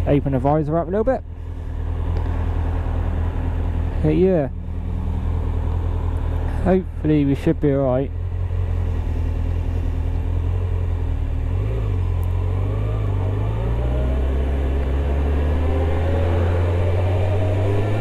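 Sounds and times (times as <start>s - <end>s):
motorcycle engine accelerating: 8.1s - 18.0s.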